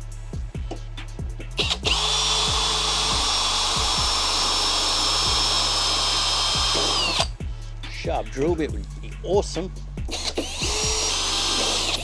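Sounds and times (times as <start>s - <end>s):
background music with a beat: 0.0s - 12.0s
electric drill boring metal: 1.6s - 7.4s, 10.1s - 12.0s.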